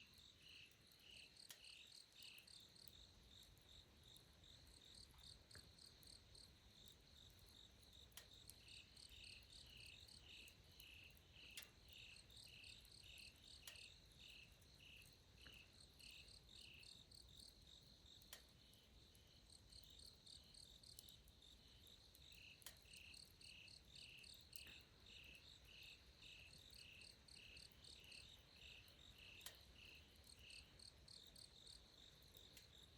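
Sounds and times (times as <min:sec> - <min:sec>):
cricket lower chirps: 0:00.1 - 0:32.9
faint clicks: 0:06.8 - 0:08.7, 0:09.3 - 0:12.0, 0:12.8 - 0:13.9, 0:18.2 - 0:18.8, 0:22.1 - 0:25.5, 0:26.8 - 0:32.8.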